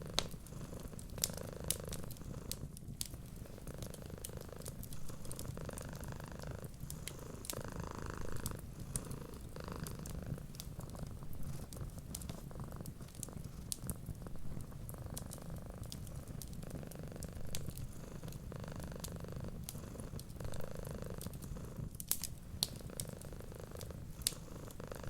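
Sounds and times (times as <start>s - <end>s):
cat purring: 0.0s - 25.0s
wood fire crackling: 0.0s - 25.0s.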